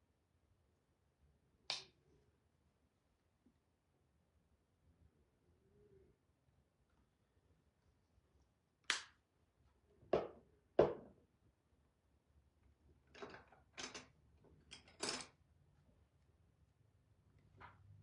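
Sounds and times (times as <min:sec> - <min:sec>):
objects clicking and knocking on table: 0:13.1 - 0:15.4.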